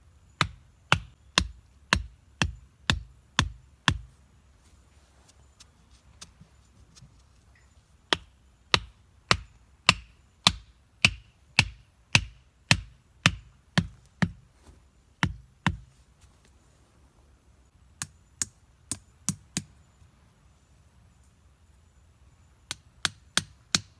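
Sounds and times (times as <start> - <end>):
wood being chopped: 0.4 - 4.1, 8.1 - 14.5, 15.2 - 15.9, 22.7 - 23.9.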